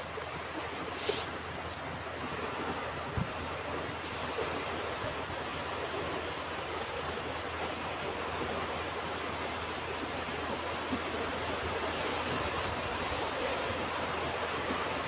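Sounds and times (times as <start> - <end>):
ocean surf washing on beach: 1.0 - 1.3.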